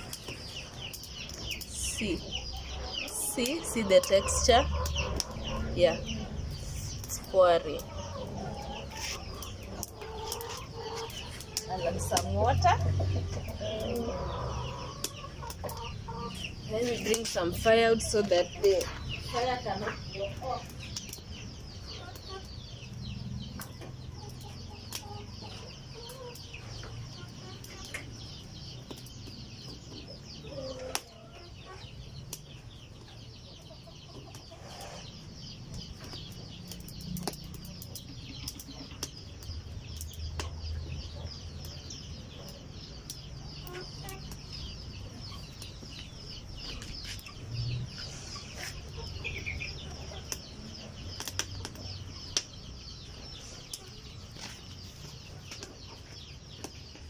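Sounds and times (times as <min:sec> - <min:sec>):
chickens clucking: 0:00.0 - 0:57.0
wood fire crackling: 0:00.0 - 0:57.0
firewood snapping: 0:35.8 - 0:40.7, 0:51.2 - 0:52.6.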